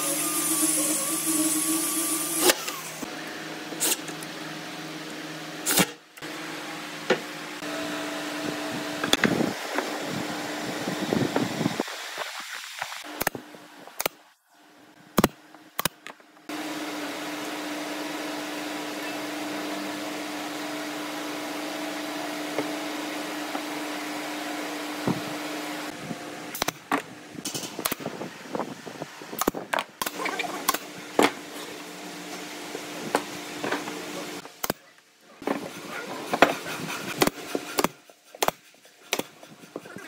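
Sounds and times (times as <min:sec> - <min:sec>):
power tool motor humming: 0:00.0 - 0:03.1.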